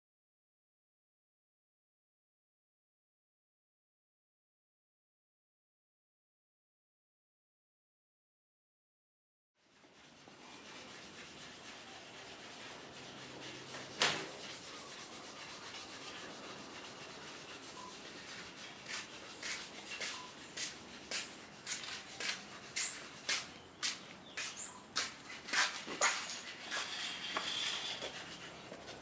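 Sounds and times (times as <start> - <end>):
sanding wood hiss: 9.7 - 28.8
short sharp strokes on wood: 10.0 - 29.0.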